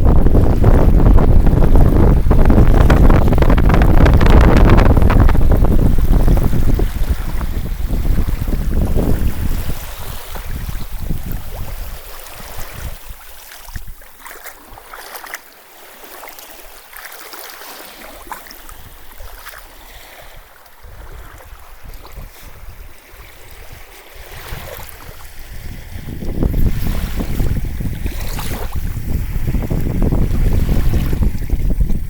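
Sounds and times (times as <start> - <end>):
wind buffeting microphone: 0.0 - 15.0, 18.6 - 32.0
sea water washing: 0.0 - 32.0
small splashing crackles: 13.6 - 15.4.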